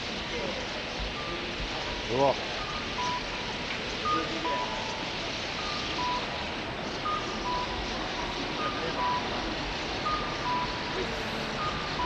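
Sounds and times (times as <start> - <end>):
background hiss: 0.0 - 12.0
two-tone reversing beeper: 2.6 - 3.4, 4.0 - 6.4, 7.0 - 12.0.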